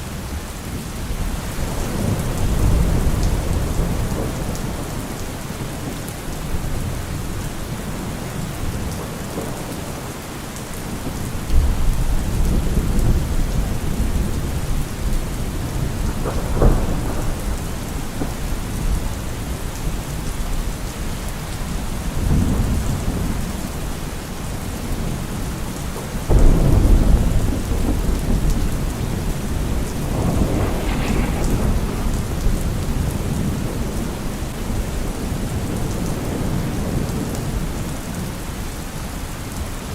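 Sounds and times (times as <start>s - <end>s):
heavy rain on a car roof: 0.0s - 39.9s
thunder rolling: 11.2s - 19.6s, 26.3s - 37.7s
sharp thunder crack: 26.3s - 34.8s.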